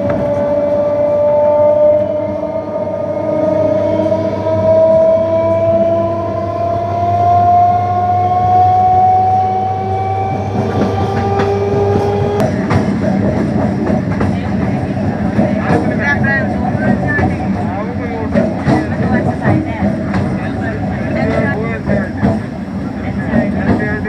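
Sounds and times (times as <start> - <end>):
low hum and rail noise: 0.0 - 24.0
train motor whine: 0.0 - 24.0
train wheel clatter: 10.1 - 24.0.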